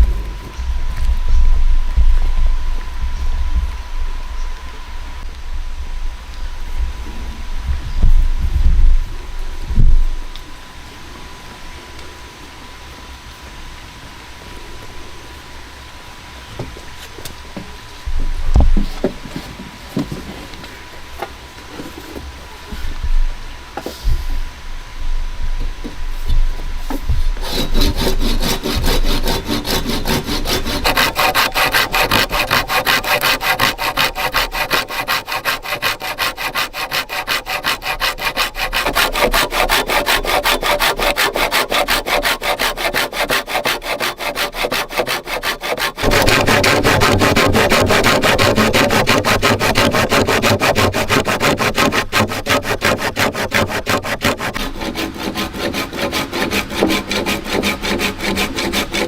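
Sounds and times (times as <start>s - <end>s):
wood being sawn: 26.9s - 59.0s.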